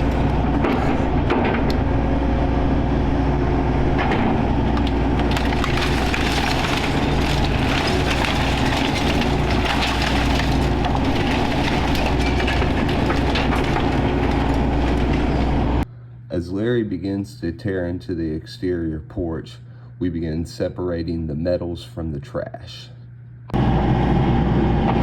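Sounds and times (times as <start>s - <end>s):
wood cracking and splintering: 0.0s - 1.9s, 3.8s - 15.8s
excavator engine running: 0.0s - 15.9s.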